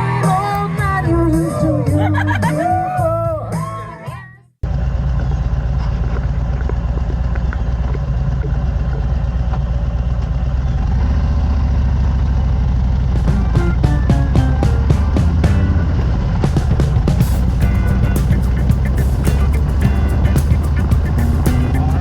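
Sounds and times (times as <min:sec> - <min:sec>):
motorcycle engine droning: 0:04.6 - 0:22.0
music with regular beat: 0:13.2 - 0:22.0.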